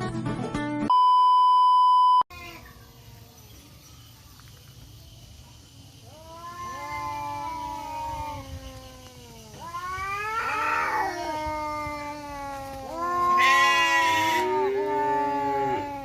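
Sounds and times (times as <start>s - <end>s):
loud steady beep tone: 0.9s - 2.3s
tomcat yowling: 6.1s - 16.0s.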